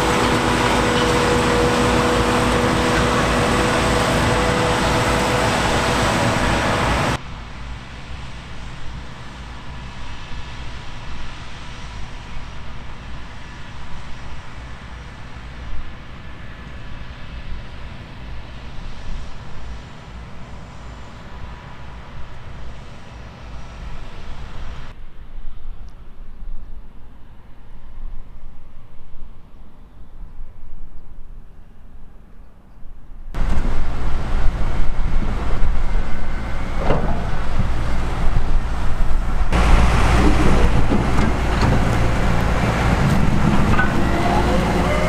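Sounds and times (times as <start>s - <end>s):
heavy diesel machinery running: 0.0s - 7.2s, 33.4s - 45.0s.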